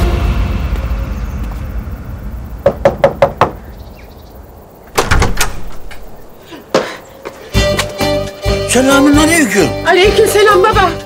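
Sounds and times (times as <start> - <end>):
knocking on wooden door: 2.6 - 3.6
door unlatched and opened: 4.9 - 6.1.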